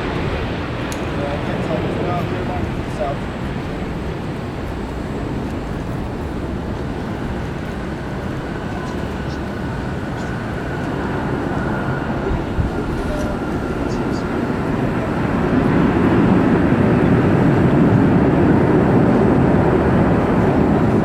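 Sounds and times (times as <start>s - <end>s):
jet engines rumbling: 0.0s - 21.0s
faint high whine: 5.2s - 17.4s.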